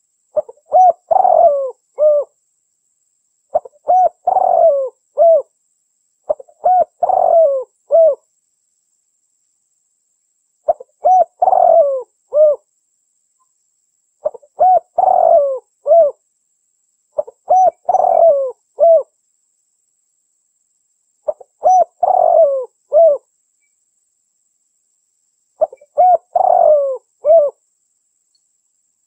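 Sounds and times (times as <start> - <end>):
dove cooing: 0.4 - 2.4, 3.5 - 5.5, 6.3 - 8.2, 10.7 - 12.7, 14.2 - 16.2, 17.2 - 19.1, 21.3 - 23.3, 25.6 - 27.6.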